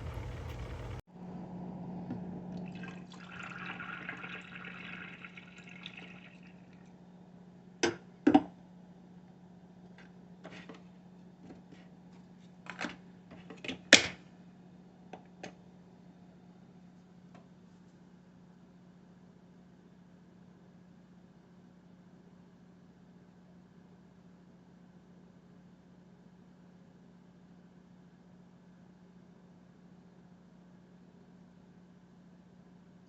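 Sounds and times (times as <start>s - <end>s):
coffee maker humming: 0.0s - 6.8s
coffee streaming into cup: 2.6s - 6.7s.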